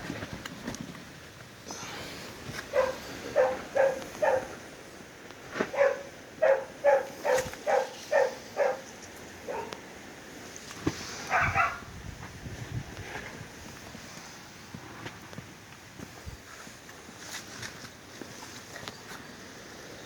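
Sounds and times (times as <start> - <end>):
dog barking: 2.7 - 4.6, 5.7 - 8.9, 9.5 - 9.8, 11.3 - 11.9.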